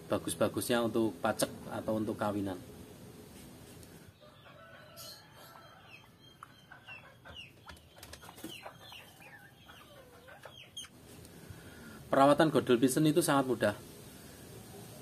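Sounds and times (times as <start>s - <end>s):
faint bird chirps: 4.2s - 11.0s.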